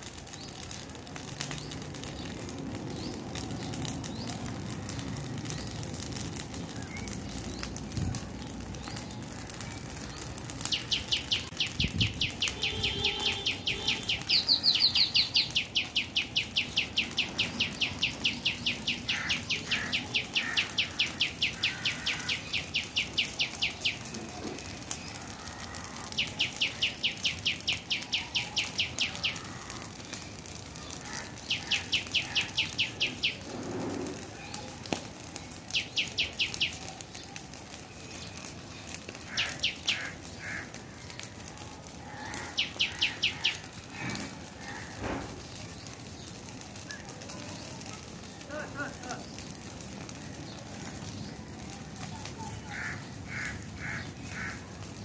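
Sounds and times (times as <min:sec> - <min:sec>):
bird high sharp chirps: 0:10.7 - 0:24.1, 0:26.0 - 0:29.8, 0:31.4 - 0:33.5, 0:35.7 - 0:37.0, 0:39.2 - 0:40.6, 0:42.2 - 0:43.7.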